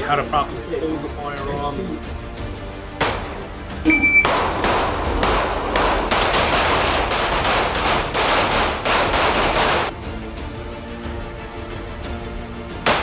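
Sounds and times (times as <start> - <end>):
rapid pistol fire: 4.2 - 9.9.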